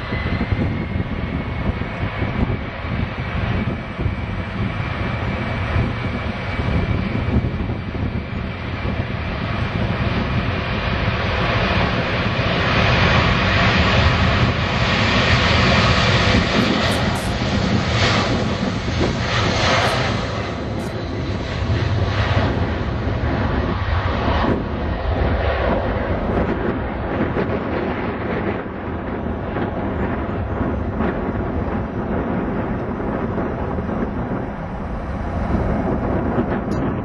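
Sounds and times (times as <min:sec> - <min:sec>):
jet engines roaring: 0:00.0 - 0:37.0.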